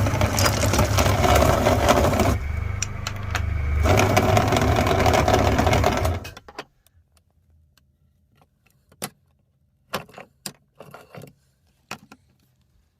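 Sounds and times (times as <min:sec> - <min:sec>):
meat grinder grinding candy: 0:00.0 - 0:06.5.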